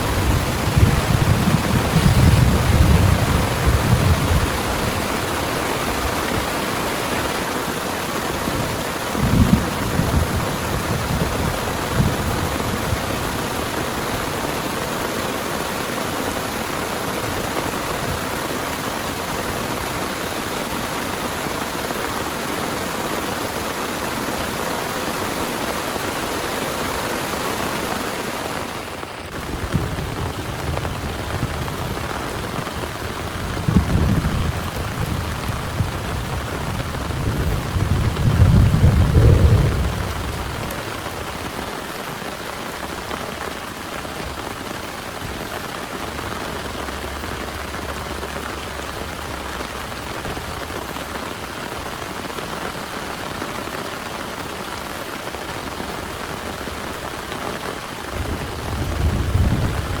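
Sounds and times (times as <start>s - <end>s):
thunder rumbling: 0.0s - 14.8s, 28.6s - 41.9s, 58.1s - 60.0s
heavy rain pouring: 0.0s - 60.0s.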